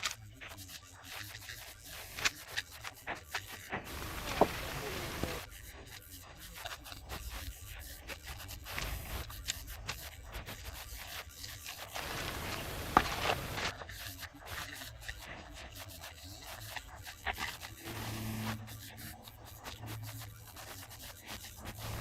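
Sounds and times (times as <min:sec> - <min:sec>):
trowel scraping render on wall: 0:00.0 - 0:14.3.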